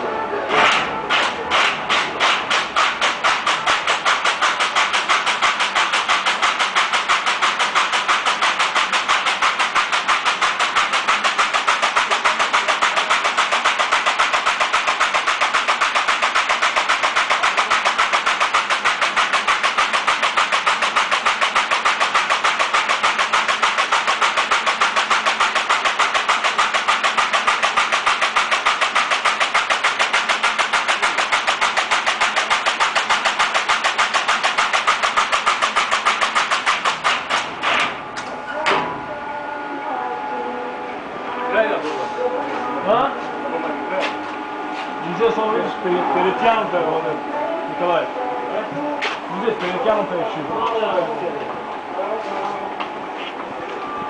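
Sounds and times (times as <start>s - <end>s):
rewinding machine clattering: 0.5s - 38.9s.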